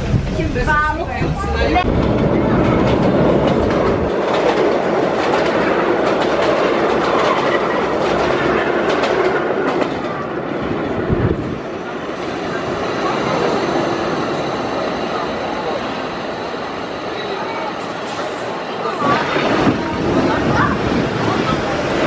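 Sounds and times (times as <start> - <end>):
subway car rumble: 0.0 - 22.0
wheels clacking over rail joints: 1.8 - 10.4.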